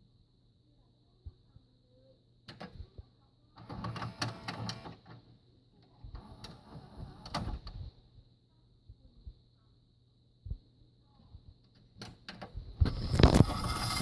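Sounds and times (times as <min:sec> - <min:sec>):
faint high whine: 0:12.6 - 0:14.0.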